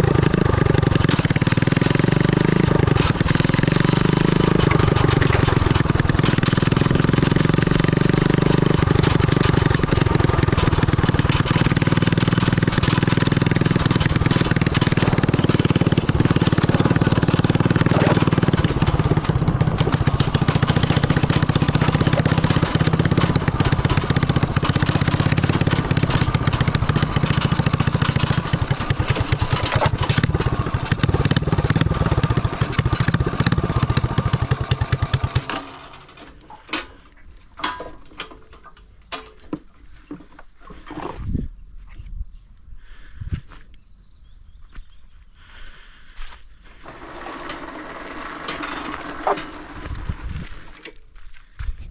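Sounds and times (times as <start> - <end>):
go-kart engine running: 0.0 - 36.7, 46.8 - 50.9.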